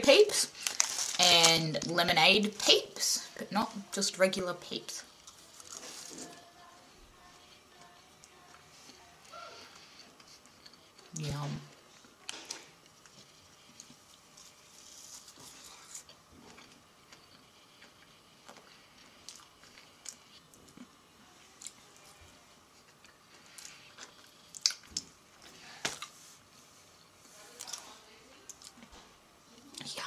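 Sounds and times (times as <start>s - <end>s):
chewing marshmallow: 7.4s - 22.1s, 22.7s - 26.2s.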